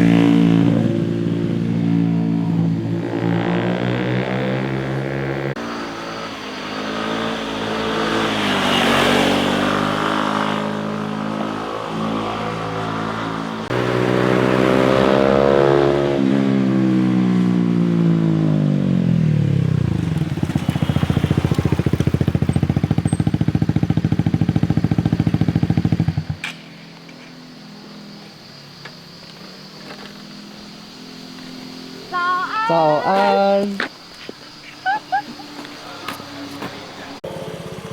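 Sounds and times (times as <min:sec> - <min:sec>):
loud pulsing engine: 0:00.0 - 0:20.0
motorcycles passing and revving: 0:00.0 - 0:37.9.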